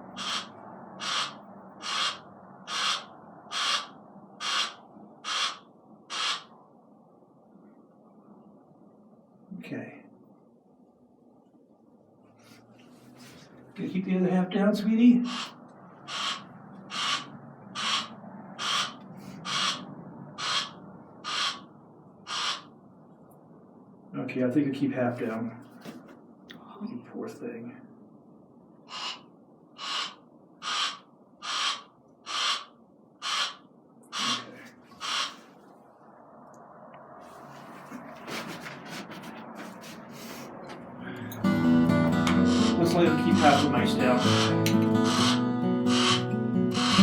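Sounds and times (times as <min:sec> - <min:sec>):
barn owl hissing: 0:00.1 - 0:06.5, 0:15.2 - 0:19.8, 0:20.4 - 0:21.7, 0:22.3 - 0:22.7, 0:28.9 - 0:35.6, 0:42.5 - 0:47.0.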